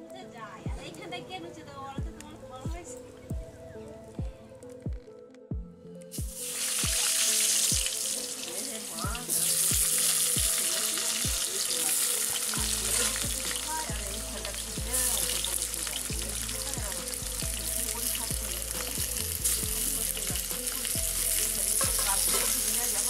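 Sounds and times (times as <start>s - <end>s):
potatoes sizzling in hot oil: 6.2s - 23.0s.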